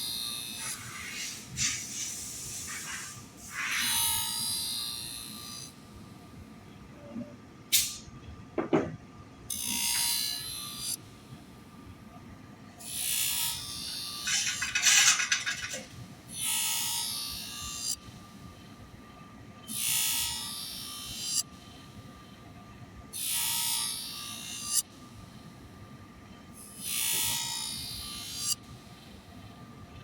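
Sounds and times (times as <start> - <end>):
scissor sharpener motor hum: 3.6 - 5.7, 26.7 - 28.6.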